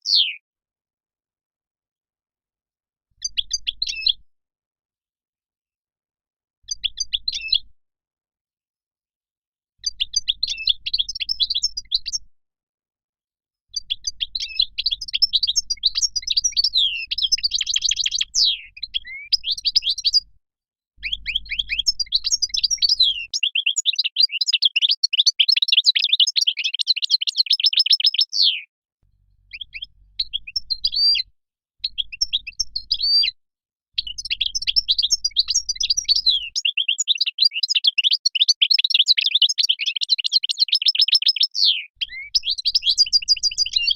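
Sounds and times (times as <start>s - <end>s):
goldfinch singing: 0.0s - 0.4s, 9.8s - 12.2s, 13.8s - 20.3s, 21.0s - 28.6s, 29.5s - 33.4s, 34.0s - 43.9s.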